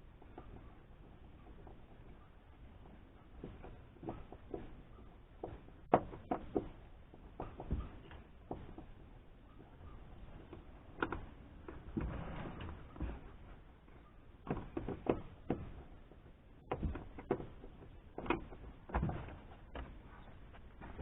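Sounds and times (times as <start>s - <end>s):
rustling: 0.0s - 21.0s.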